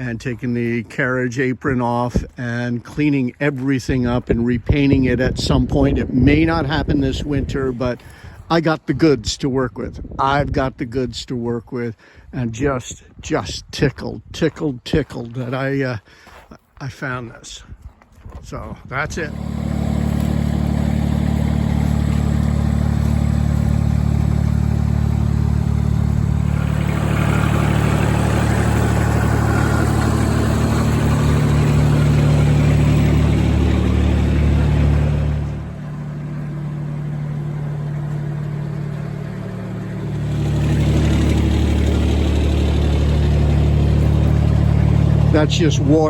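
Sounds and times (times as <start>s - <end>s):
backhoe loader engine running: 19.1s - 46.0s.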